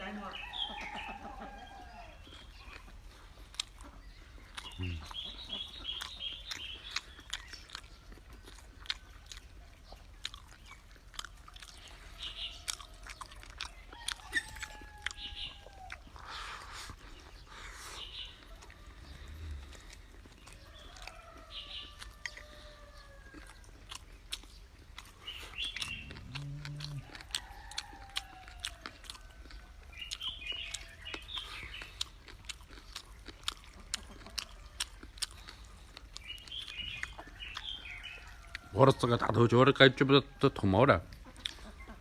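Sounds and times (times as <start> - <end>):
birds chirping: 0.0 - 42.0
person chewing crunchy food: 0.3 - 39.4, 41.1 - 42.0.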